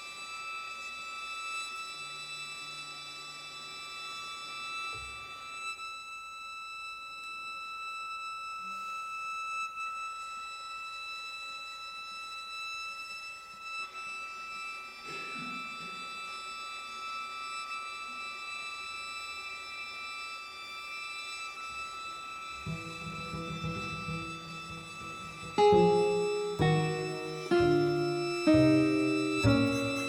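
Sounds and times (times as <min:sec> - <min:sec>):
short low string notes: 0:22.7 - 0:30.0
violins sustaining high notes: 0:22.7 - 0:30.0.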